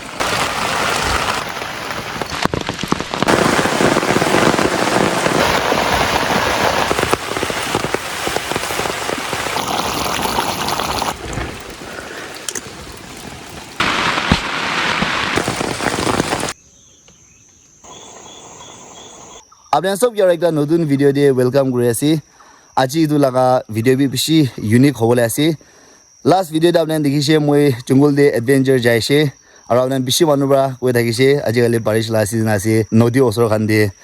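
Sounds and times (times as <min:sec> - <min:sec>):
heavy rain pouring: 0:00.0 - 0:16.6.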